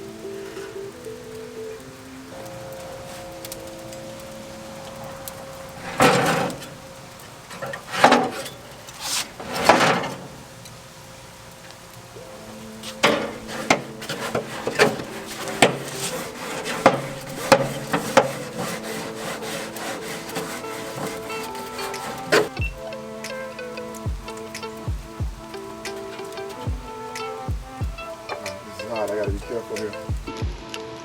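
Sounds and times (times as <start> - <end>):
loud rasping scrapes: 5.8 - 6.8, 7.5 - 10.4, 12.8 - 22.7.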